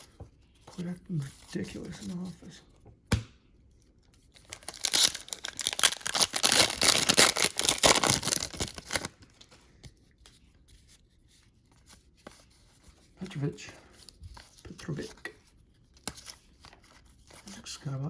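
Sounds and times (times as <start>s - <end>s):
wrapper tearing and crinkling: 4.4s - 9.5s.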